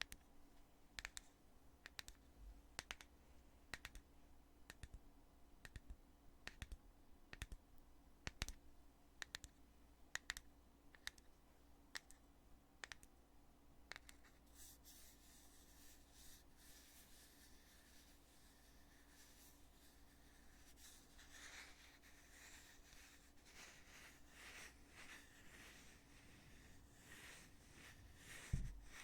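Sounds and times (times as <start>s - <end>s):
soft rubbing hiss: 13.9s - 29.0s.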